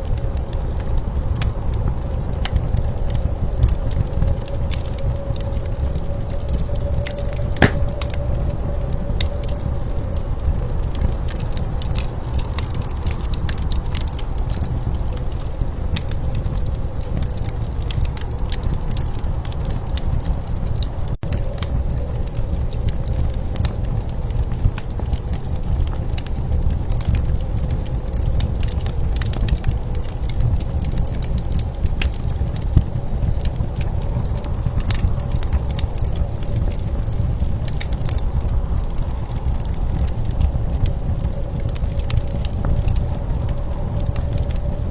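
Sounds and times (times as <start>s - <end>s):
wood fire crackling and popping: 7.1s - 8.2s, 22.5s - 44.9s
blizzard wind rumbling: 26.0s - 44.9s.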